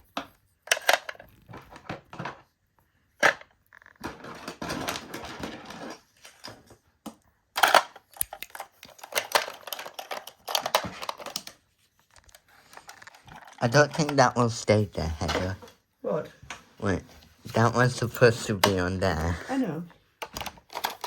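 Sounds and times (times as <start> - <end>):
plastic toy pieces clattering: 0.2 - 2.5, 3.2 - 14.5, 20.2 - 21.0.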